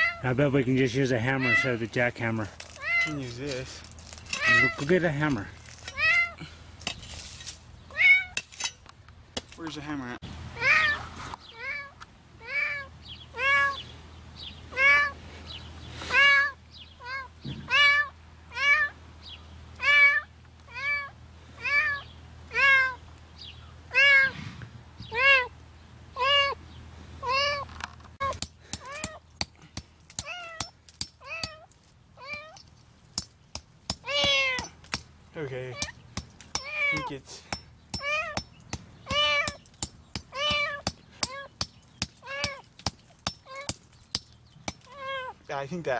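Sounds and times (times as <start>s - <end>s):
kitten meowing: 0.0s - 0.2s, 1.4s - 1.8s, 2.8s - 3.2s, 5.9s - 6.4s, 10.6s - 13.8s, 14.7s - 15.2s, 16.1s - 18.9s, 19.8s - 23.0s, 23.9s - 24.4s, 25.1s - 25.5s, 26.2s - 26.6s, 27.2s - 29.2s, 30.2s - 32.6s, 34.0s - 34.7s, 36.6s - 37.1s, 38.0s - 38.4s, 39.1s - 39.6s, 40.3s - 41.5s, 42.2s - 42.6s, 44.9s - 45.4s
hammer chipping at concrete: 28.2s - 35.1s, 35.7s - 45.0s.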